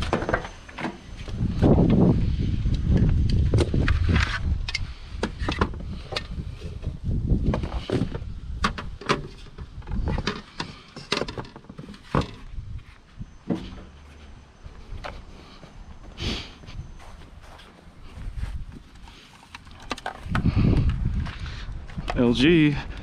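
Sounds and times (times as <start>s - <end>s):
hard objects knocking and clunking: 5.2s - 12.6s.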